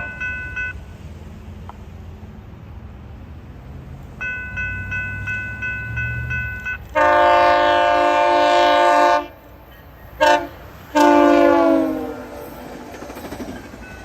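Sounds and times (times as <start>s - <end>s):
railroad crossing bell ringing: 0.0s - 1.0s, 4.2s - 10.2s, 11.0s - 14.0s
train rumbling: 0.0s - 14.0s
train air horn blast: 6.9s - 9.6s, 10.2s - 13.0s.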